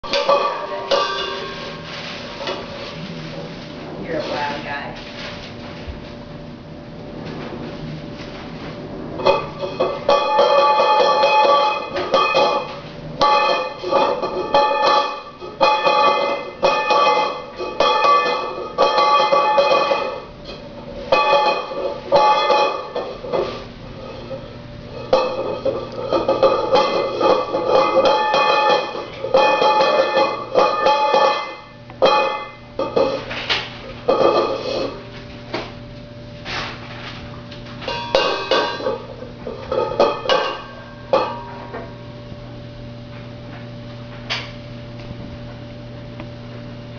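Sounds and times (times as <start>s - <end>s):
bowl banging with ringing tone: 0.0s - 2.7s, 9.2s - 33.4s, 34.0s - 35.1s, 37.8s - 42.2s.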